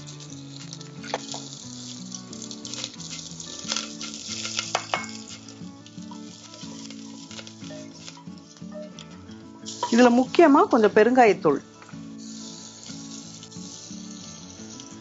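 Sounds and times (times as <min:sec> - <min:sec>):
soft background music: 0:00.0 - 0:15.0
spices sizzling in hot oil: 0:00.0 - 0:15.0
crackling pops: 0:00.1 - 0:10.6.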